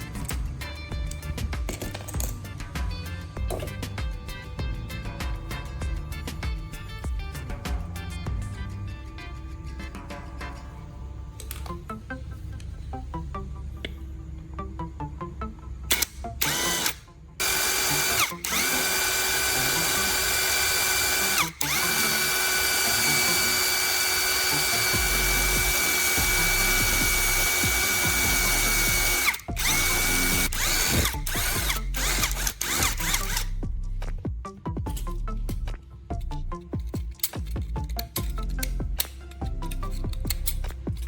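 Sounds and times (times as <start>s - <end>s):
electric motor whining: 15.9s - 33.6s.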